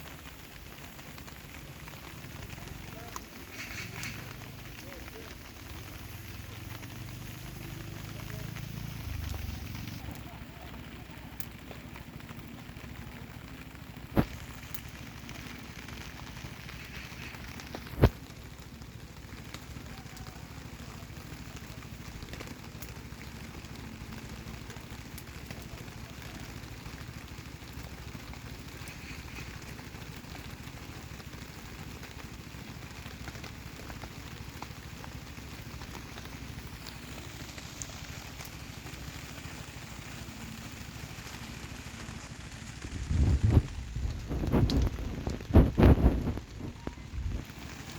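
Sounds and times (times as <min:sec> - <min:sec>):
campfire burning: 0:00.0 - 0:47.9
rain hissing: 0:00.0 - 0:47.9
sharp loud fire pops: 0:16.2 - 0:18.2.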